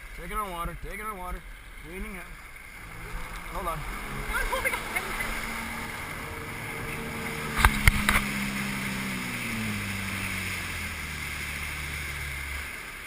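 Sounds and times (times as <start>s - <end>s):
jet ski engine throttling down: 0.0s - 13.0s
wind noise: 2.7s - 11.2s.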